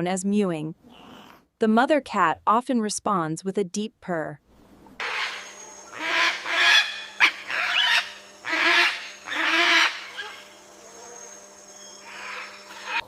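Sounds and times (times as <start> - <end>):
harsh nasal animal calls: 5.0 - 13.0.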